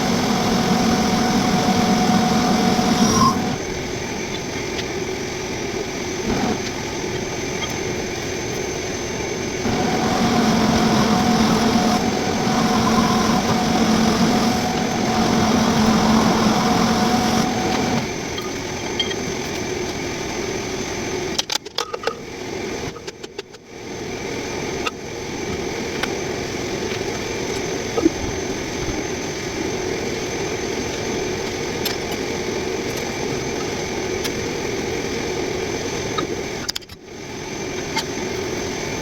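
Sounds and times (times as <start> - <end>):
metal lathe cutting: 0.0 - 4.0, 9.6 - 18.4.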